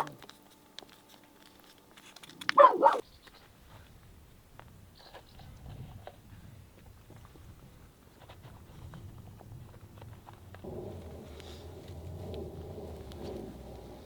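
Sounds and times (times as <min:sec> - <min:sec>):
dog barking: 0:02.5 - 0:03.0.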